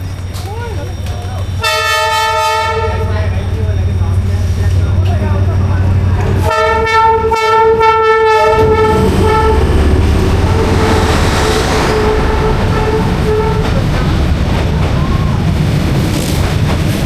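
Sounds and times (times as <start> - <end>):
train rumbling and rattling: 0.0 - 17.0
train horn: 1.6 - 3.2, 6.4 - 14.0.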